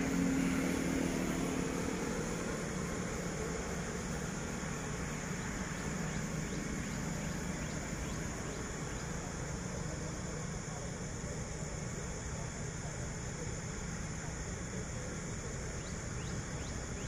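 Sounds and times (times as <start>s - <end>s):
distant diesel engine drone: 0.0s - 17.0s
road traffic hum: 0.0s - 17.0s.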